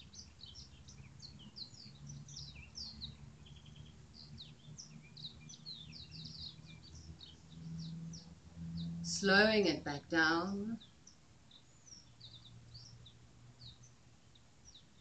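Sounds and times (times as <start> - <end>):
low steady hum: 0.0 - 15.0
small birds chirping: 0.0 - 15.0.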